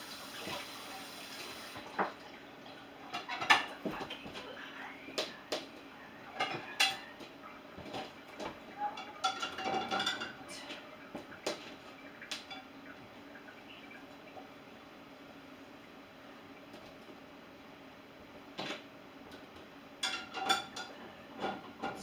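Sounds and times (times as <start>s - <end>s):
dishes and cutlery clinking: 6.3s - 7.2s, 7.8s - 10.4s, 20.0s - 22.0s.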